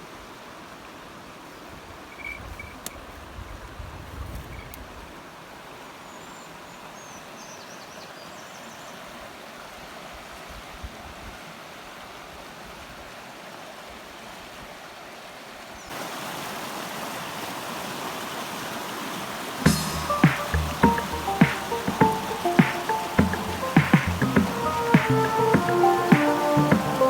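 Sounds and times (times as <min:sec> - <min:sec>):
stream rushing over rocks: 0:11.5 - 0:27.0.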